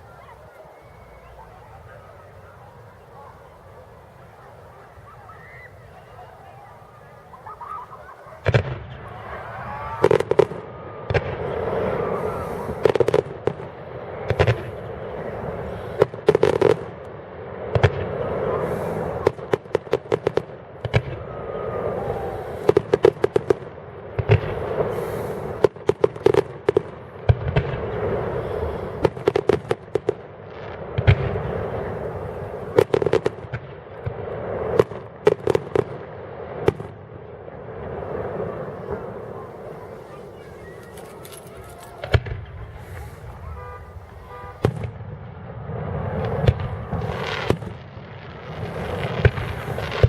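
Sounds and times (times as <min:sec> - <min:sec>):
firework bangs: 0:00.0 - 0:50.0
firework crackling: 0:00.0 - 0:50.0.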